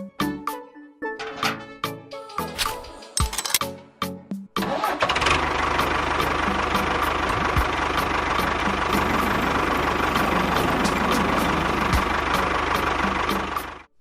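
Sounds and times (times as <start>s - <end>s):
engine idling: 4.8s - 13.9s.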